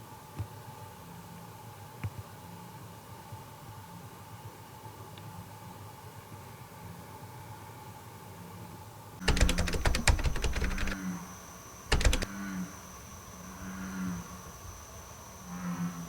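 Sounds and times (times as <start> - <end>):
rattle of rapid clicks: 9.2 - 11.0, 11.9 - 12.3
bullfrogs croaking: 12.3 - 14.6, 15.4 - 16.0.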